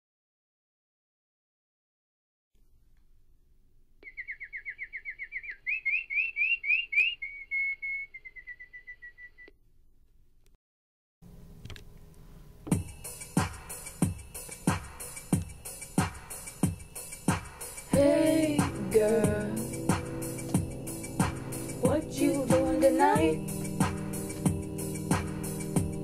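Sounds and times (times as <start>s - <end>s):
songbird whistling: 4.0s - 9.5s
music with drum beat: 12.7s - 26.0s.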